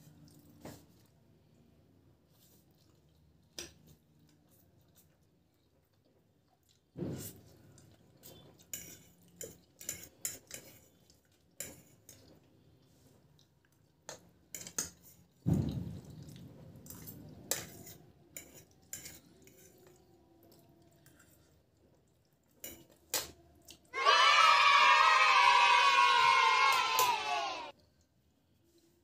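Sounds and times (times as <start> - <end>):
forks clinking on plates: 16.9 - 19.7.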